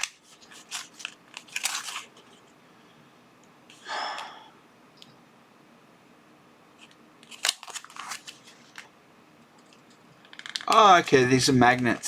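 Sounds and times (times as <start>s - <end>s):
plastic packaging rustling: 0.0s - 2.4s, 6.8s - 8.9s.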